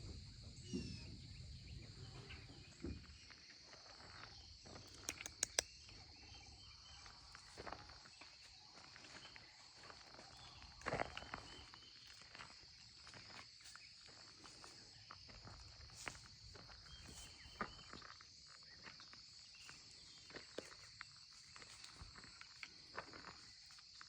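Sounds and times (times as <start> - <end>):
insects droning: 0.0 - 24.0
sharp clicks: 4.9 - 5.7.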